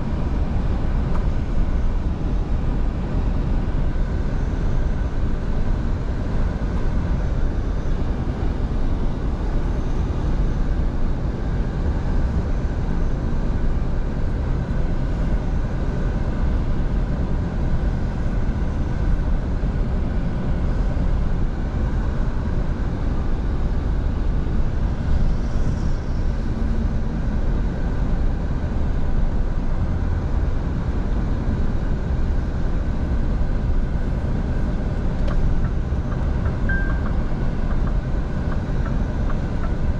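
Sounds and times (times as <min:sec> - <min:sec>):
road noise: 0:00.0 - 0:39.9
diesel truck engine rumbling: 0:25.6 - 0:39.9.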